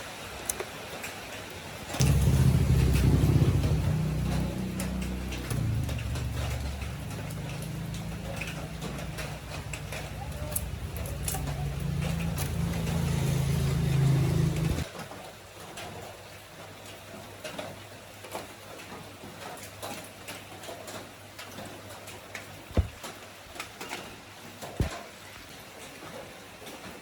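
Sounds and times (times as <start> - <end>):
motor humming: 2.0 - 14.8.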